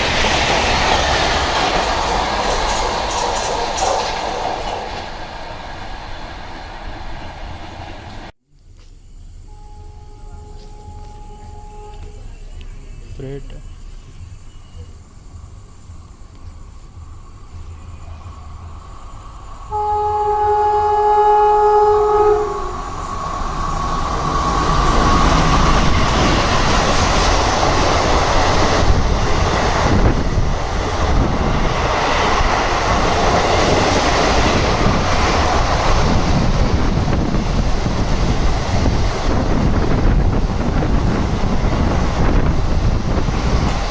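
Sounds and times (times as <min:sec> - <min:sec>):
train wheels clattering over rails: 0:00.0 - 0:08.9, 0:22.8 - 0:43.9
train horn blast: 0:09.4 - 0:12.4, 0:19.7 - 0:23.1.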